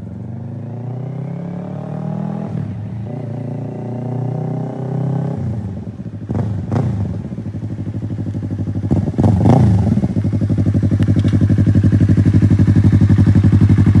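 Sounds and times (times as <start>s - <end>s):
motorcycle engine revving and idling: 0.0s - 14.0s.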